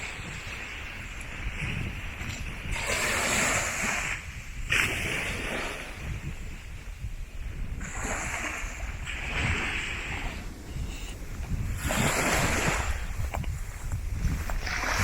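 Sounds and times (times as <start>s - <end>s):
ocean waves breaking on beach: 0.0s - 15.0s
wind rumbling on microphone: 0.0s - 15.0s.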